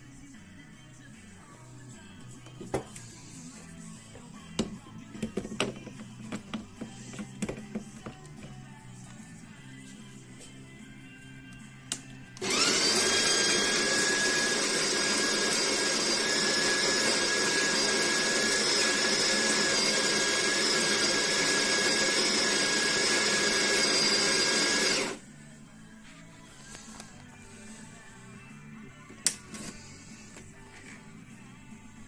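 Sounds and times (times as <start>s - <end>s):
coffee grinder motor whining: 12.4s - 25.2s.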